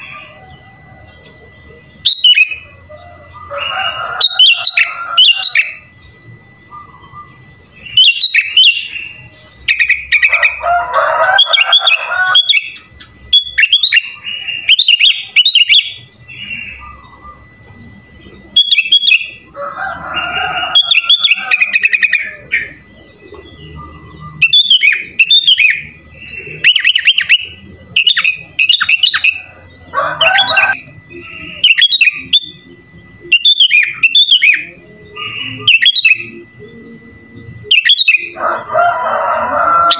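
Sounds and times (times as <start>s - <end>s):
bird chirping song: 0.0s - 39.9s.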